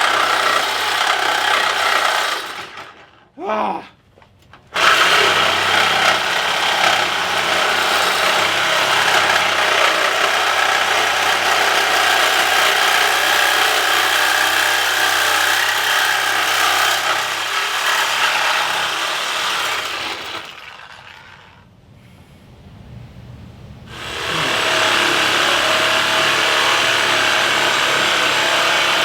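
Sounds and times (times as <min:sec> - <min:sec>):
handheld power tool running: 0:00.0 - 0:03.1, 0:04.8 - 0:21.5, 0:23.9 - 0:29.0.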